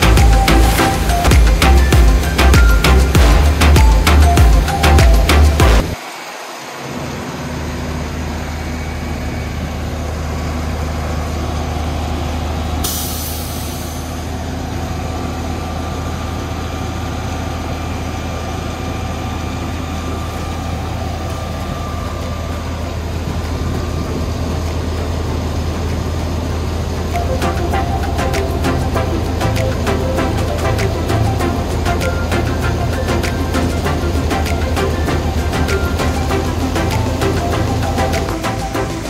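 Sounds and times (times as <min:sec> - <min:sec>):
diesel engine running: 0:00.0 - 0:39.0
burst of hiss: 0:12.8 - 0:14.3.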